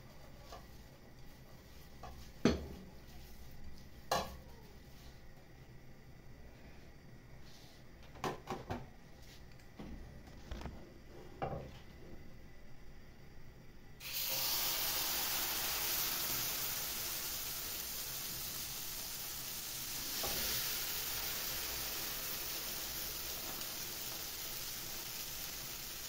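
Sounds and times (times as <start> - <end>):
batter sizzling in a frying pan: 14.0 - 26.0.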